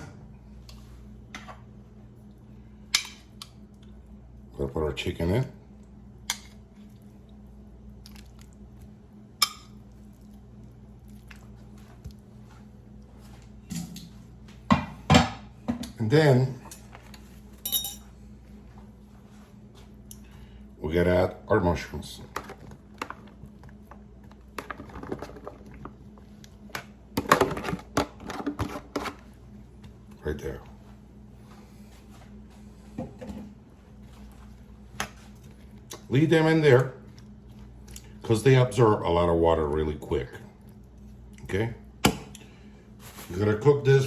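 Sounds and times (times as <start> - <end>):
low steady hum: 0.0 - 44.0
chicken squishing in sauce: 5.7 - 13.0, 34.4 - 38.3.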